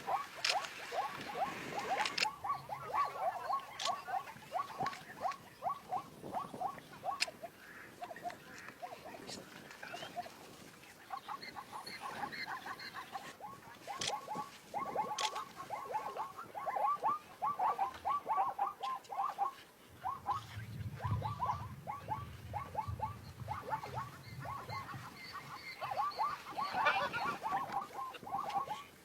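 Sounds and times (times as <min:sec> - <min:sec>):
small animal squeaking: 0:11.1 - 0:28.9.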